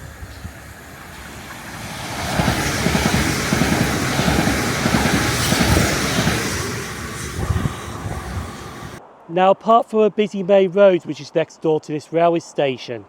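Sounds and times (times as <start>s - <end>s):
electric train passing at speed: 0.0s - 9.1s.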